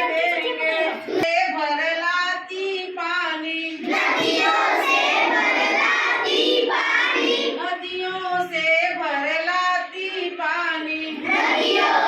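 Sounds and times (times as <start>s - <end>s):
children singing a rhyme: 3.8s - 8.6s, 9.9s - 12.0s.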